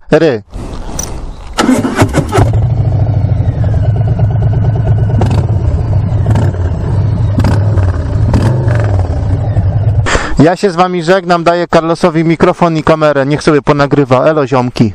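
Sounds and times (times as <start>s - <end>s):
motorcycle engine idling: 1.8s - 10.4s.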